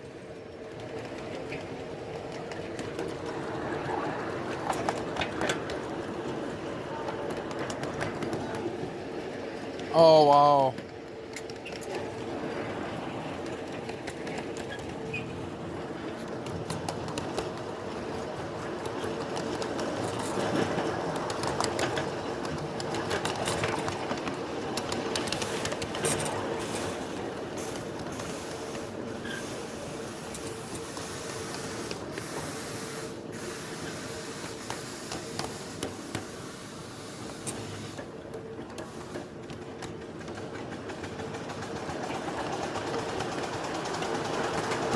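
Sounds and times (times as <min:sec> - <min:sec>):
miniature train rolling: 0:00.0 - 0:44.9
wheels clicking over rails: 0:00.0 - 0:44.9
steam hissing: 0:25.2 - 0:38.2.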